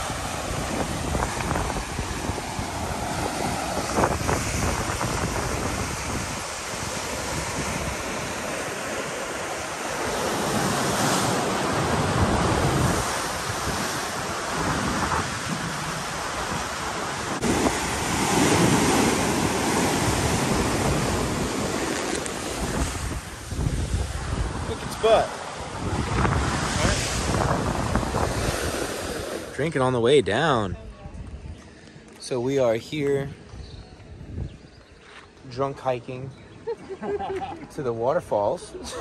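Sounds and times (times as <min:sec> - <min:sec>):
wind buffeting microphone: 0:00.0 - 0:29.5, 0:33.4 - 0:35.0
ocean surf breaking: 0:00.0 - 0:30.5.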